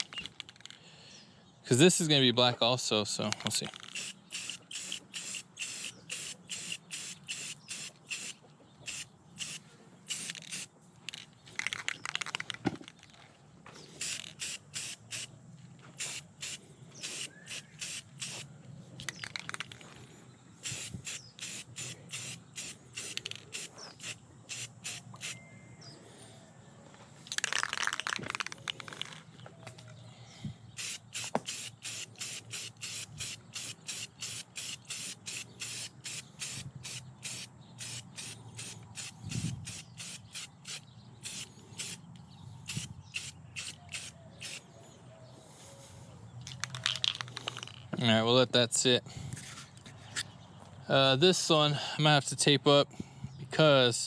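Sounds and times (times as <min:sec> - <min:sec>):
spray paint can hissing: 0:03.9 - 0:10.7, 0:14.0 - 0:15.3, 0:16.0 - 0:18.5, 0:20.6 - 0:25.4, 0:30.8 - 0:42.0, 0:42.7 - 0:44.6.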